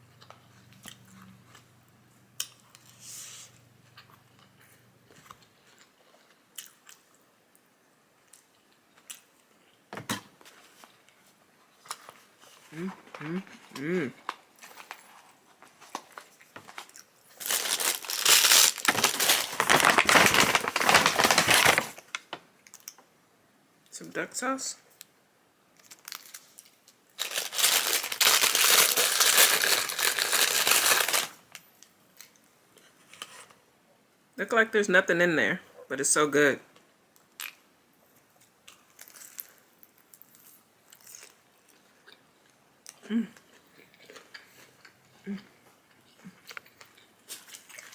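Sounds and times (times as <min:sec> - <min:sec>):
crunching and chewing food: 0:00.0 - 0:23.0, 0:25.8 - 0:33.5, 0:37.1 - 0:47.9
food packaging crinkling: 0:11.8 - 0:23.0, 0:25.8 - 0:31.5, 0:38.7 - 0:41.8.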